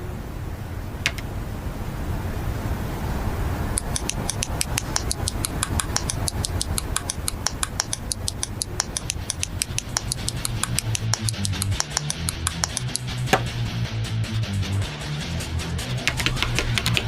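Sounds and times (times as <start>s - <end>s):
fast rattling ticks: 3.8s - 13.2s.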